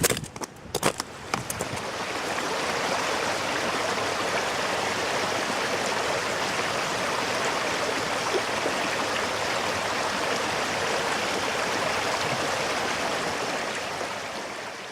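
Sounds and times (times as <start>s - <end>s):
brook water rushing: 0.0s - 14.9s.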